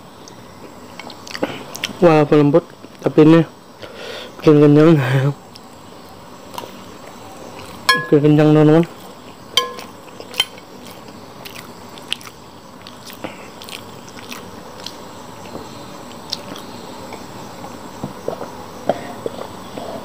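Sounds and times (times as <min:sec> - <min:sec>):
person chewing: 0:09.2 - 0:16.7.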